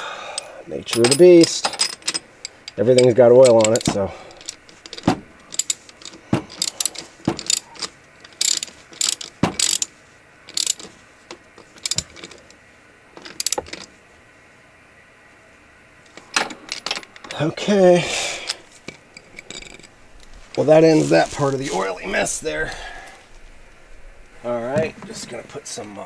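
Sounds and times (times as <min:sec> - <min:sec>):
socket ratchet clicking: 0:01.0 - 0:09.9, 0:10.5 - 0:10.9, 0:11.8 - 0:12.4, 0:13.2 - 0:13.9.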